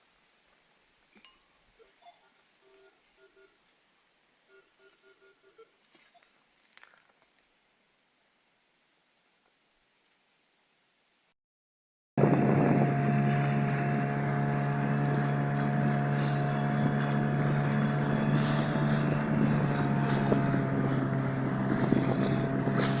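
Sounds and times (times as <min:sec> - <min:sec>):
outboard motor droning: 0:12.2 - 0:23.0
wind noise on microphone: 0:12.2 - 0:23.0.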